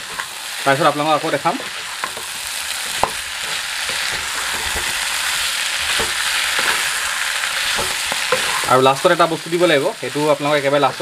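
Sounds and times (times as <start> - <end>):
spatula scraping a pan: 0.0 - 0.5, 1.4 - 9.0
meat and potatoes sizzling in oil: 0.0 - 11.0
spatula knocking on pan: 2.9 - 5.0, 5.9 - 6.9, 7.7 - 8.6.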